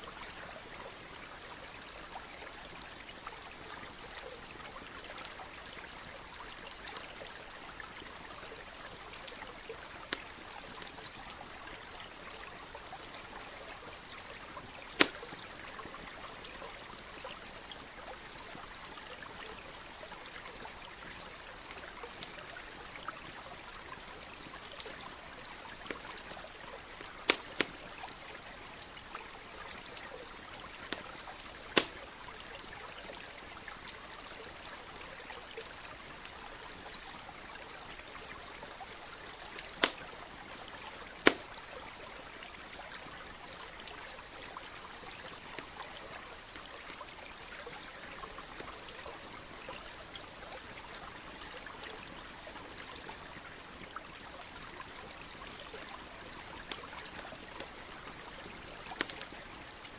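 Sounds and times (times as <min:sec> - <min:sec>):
crackling campfire: 0:00.0 - 0:59.9
stream water trickling: 0:00.0 - 0:59.9
burning wood popping: 0:14.9 - 0:15.4, 0:27.0 - 0:28.4, 0:30.7 - 0:32.1, 0:39.5 - 0:40.1, 0:41.1 - 0:41.6, 0:58.8 - 0:59.4.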